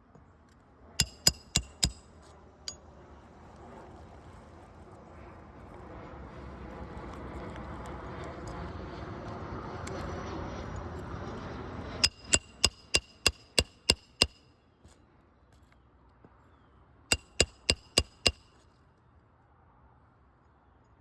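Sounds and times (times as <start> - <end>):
hammer striking metal: 1.0 - 2.1, 12.0 - 14.4, 17.1 - 18.5.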